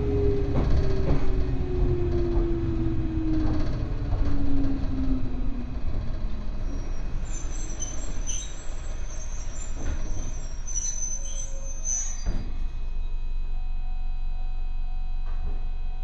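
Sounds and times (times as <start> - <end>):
train running gear rumble: 0.0 - 12.9
train motor whine: 0.0 - 16.0
brake and wheel squeal: 6.6 - 12.8.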